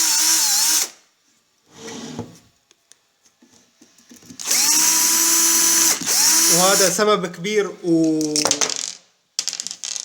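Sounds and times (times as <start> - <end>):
electric screwdriver motor whining: 4.4 - 7.0.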